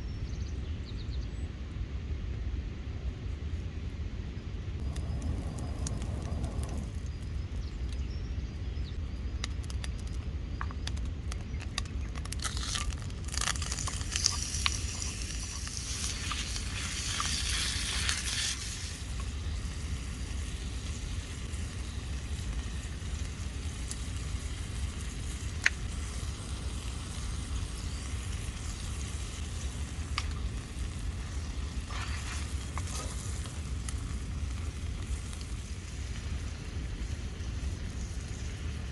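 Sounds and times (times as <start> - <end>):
steady low rumble: 0.0 - 38.9
campfire crackles: 1.8 - 38.9
food sizzling in a pan: 12.4 - 36.2.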